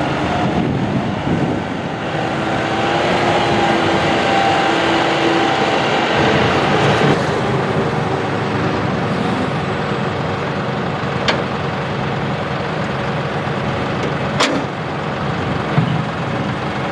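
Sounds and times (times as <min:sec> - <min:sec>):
tractor diesel engine running: 0:00.0 - 0:16.9.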